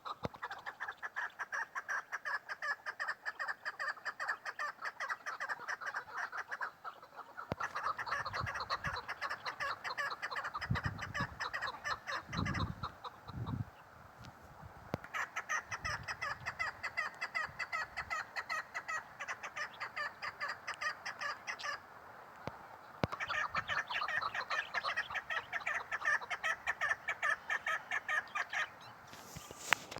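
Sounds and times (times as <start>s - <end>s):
partridge calling rapid notes: 0.0s - 13.6s, 23.1s - 29.8s.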